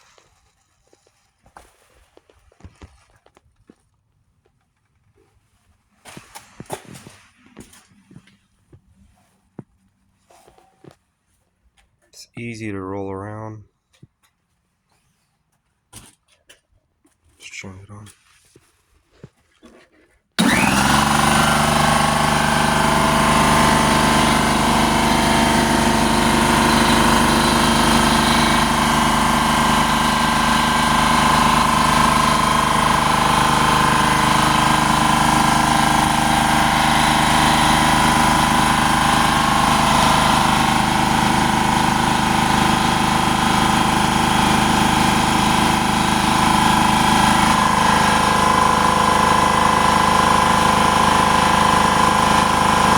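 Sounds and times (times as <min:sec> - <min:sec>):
air compressor running: 0:20.4 - 0:52.9.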